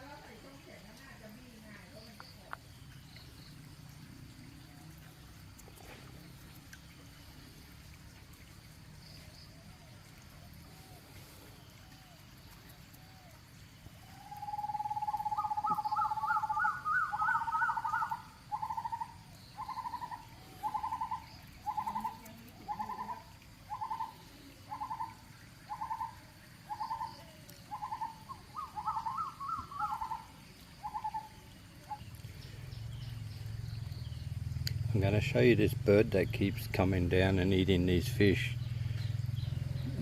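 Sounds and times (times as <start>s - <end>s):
bird trilling: 14.1s - 32.0s.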